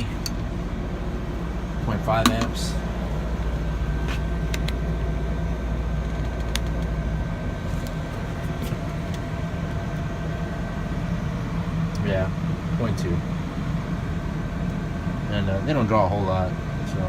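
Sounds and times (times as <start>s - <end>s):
low machinery hum: 0.0s - 17.0s.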